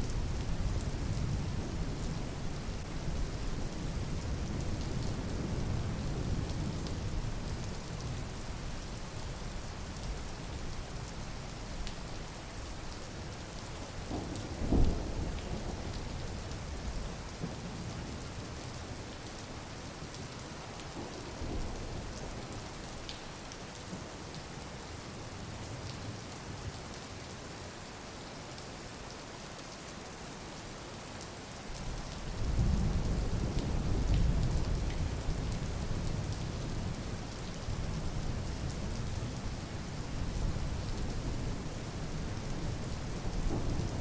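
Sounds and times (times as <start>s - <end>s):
steady rain falling: 0.0s - 44.0s
thunder rumble: 42.5s - 44.0s.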